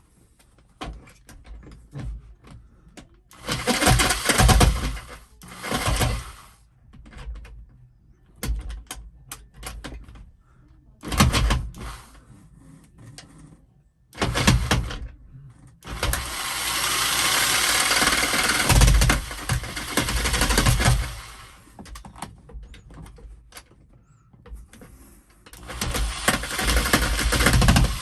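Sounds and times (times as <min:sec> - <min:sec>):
electric jigsaw cutting: 0:03.4 - 0:06.5, 0:14.2 - 0:14.9, 0:15.9 - 0:21.7, 0:25.6 - 0:28.0
jigsaw clicks: 0:16.0 - 0:21.5.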